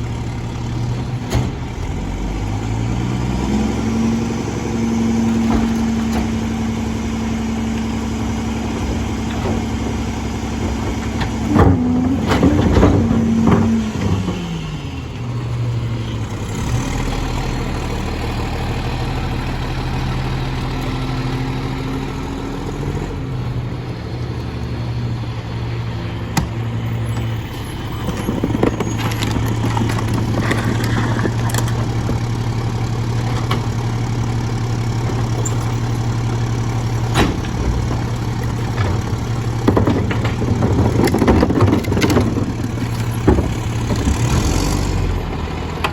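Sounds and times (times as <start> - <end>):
diesel truck engine running: 0.0 - 45.9
metallic clanks and bangs: 36.8 - 45.1.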